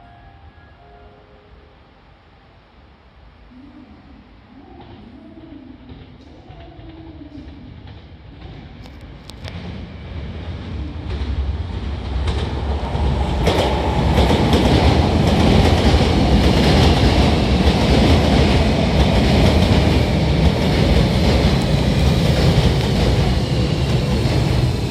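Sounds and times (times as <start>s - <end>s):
faint high tone: 0.0s - 1.7s
train wheels on rail: 4.7s - 24.9s.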